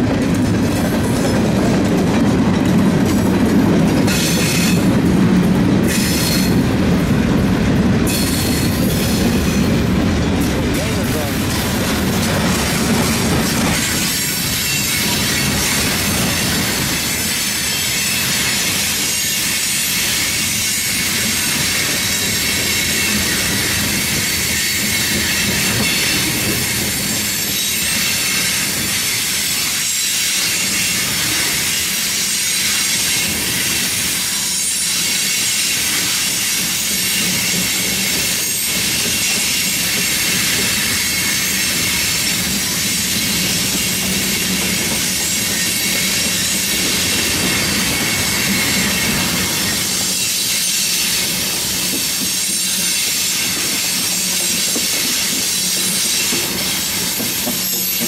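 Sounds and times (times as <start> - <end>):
train wheels rumbling on rail: 0.0 - 58.0
wheels clacking over rail joints: 0.0 - 58.0
wheel squeal: 13.3 - 58.0.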